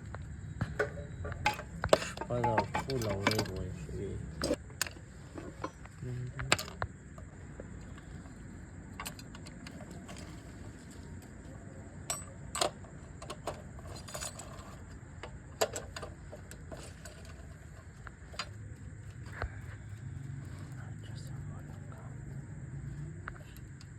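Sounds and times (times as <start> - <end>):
clicks of metal tools handled: 0.8 - 3.7.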